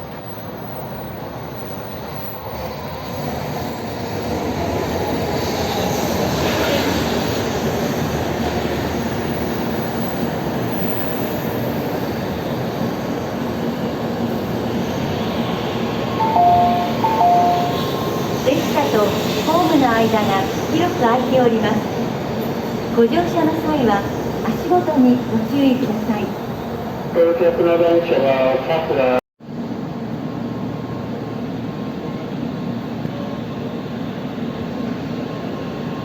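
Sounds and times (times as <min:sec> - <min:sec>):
train wheels rumbling on track: 0:00.0 - 0:27.2
two-note electronic chime: 0:16.2 - 0:18.0.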